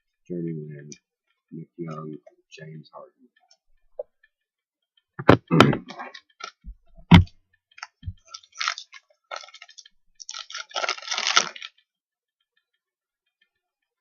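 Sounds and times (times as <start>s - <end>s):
pack wrapper crinkling: 7.8s - 11.8s.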